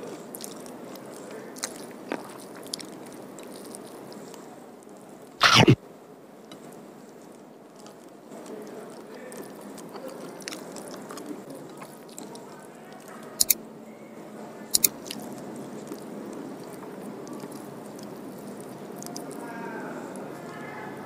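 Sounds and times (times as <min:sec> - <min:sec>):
chewing food: 0:00.0 - 0:05.8, 0:06.4 - 0:13.6, 0:14.7 - 0:21.0
wet mouth sounds: 0:05.4 - 0:05.8, 0:14.8 - 0:19.4.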